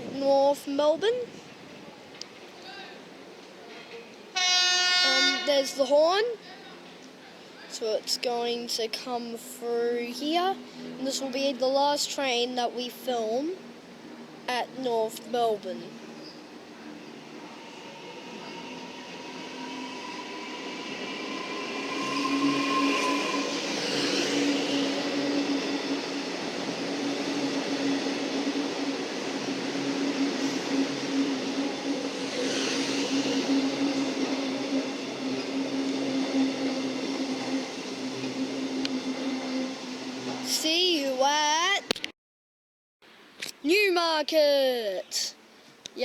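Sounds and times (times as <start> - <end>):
train wheels rolling: 15.5 - 41.7
electric train motor hum: 17.4 - 40.5.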